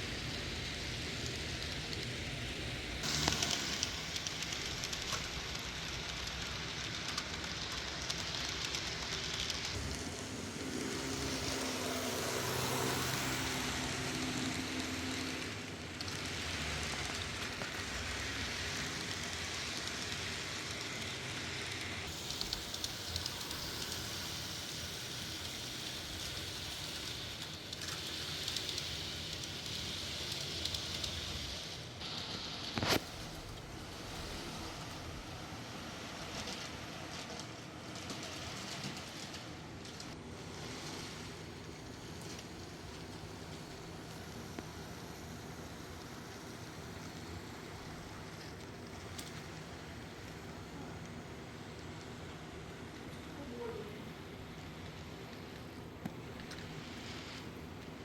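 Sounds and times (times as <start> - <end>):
model locomotive rumble and hiss: 0.0 - 58.0.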